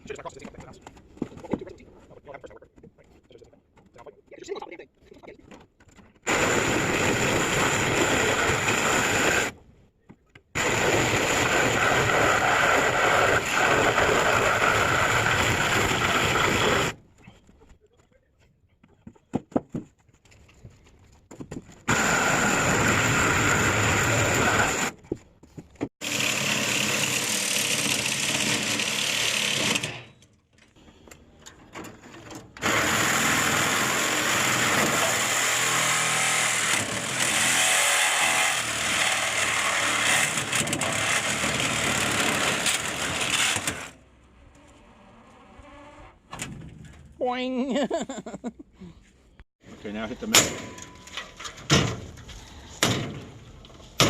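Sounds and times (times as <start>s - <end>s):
handheld power tool running: 6.3s - 9.5s, 10.6s - 17.0s, 21.9s - 24.9s, 26.0s - 30.0s, 32.6s - 44.0s.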